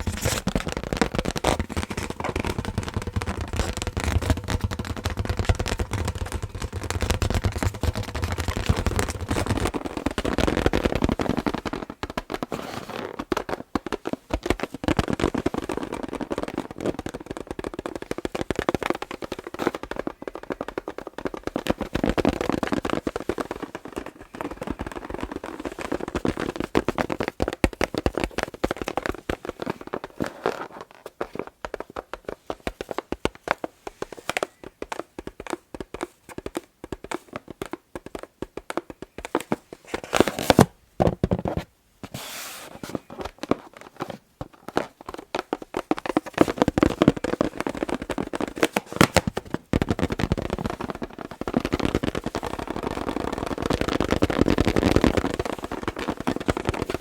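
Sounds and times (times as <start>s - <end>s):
scratching swipes on a balloon: 0.0s - 15.9s, 42.0s - 43.8s
fingers tapping on a balloon: 0.0s - 57.0s.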